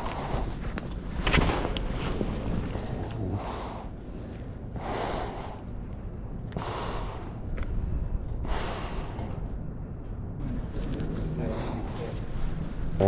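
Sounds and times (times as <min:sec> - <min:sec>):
person breathing heavily: 0:00.0 - 0:00.9, 0:02.4 - 0:09.8, 0:11.2 - 0:13.0
steady low rumble: 0:00.0 - 0:13.0.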